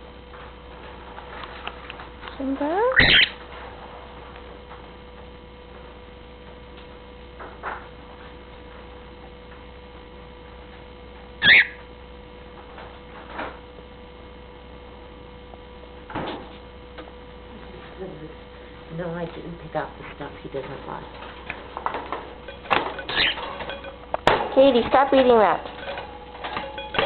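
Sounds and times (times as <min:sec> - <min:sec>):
steady electrical hum: 0:00.0 - 0:27.0
short high bird call: 0:11.4 - 0:11.8.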